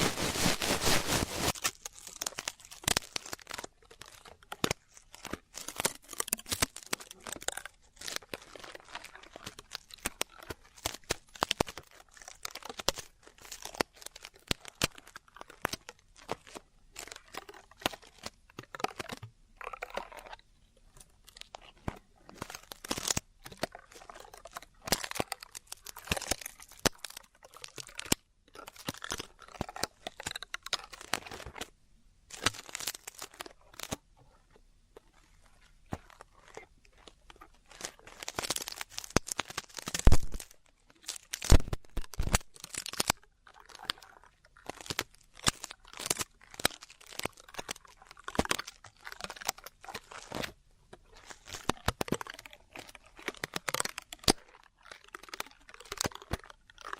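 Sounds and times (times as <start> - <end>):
ear pick scraping microphone: 0.0 - 1.6.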